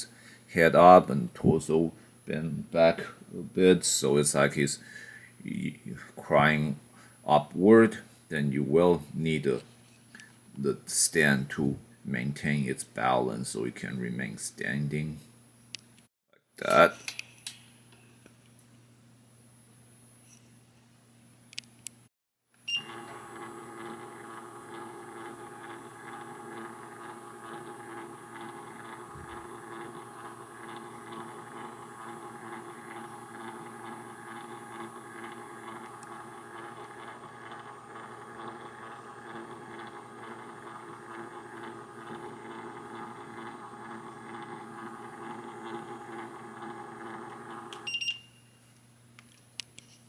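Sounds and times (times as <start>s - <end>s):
electric motor humming: 22.8s - 47.9s.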